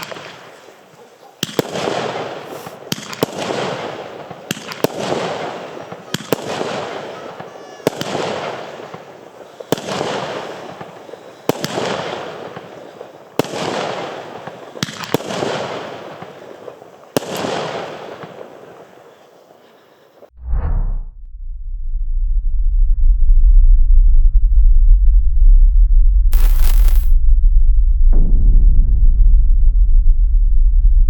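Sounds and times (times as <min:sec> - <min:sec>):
firework hissing rush: 0:00.0 - 0:13.4, 0:26.4 - 0:27.2
firework bangs: 0:00.0 - 0:20.3, 0:26.4 - 0:27.2.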